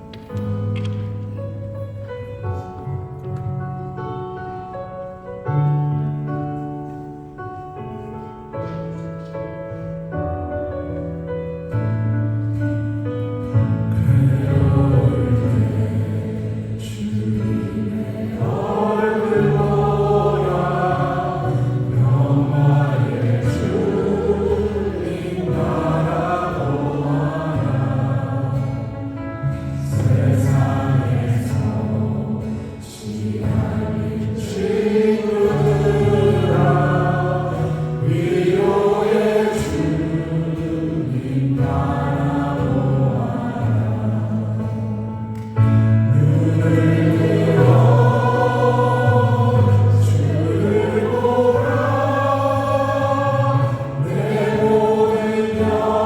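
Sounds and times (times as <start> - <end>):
group singing a praise song: 13.9 - 29.2, 29.8 - 45.1, 46.1 - 56.0.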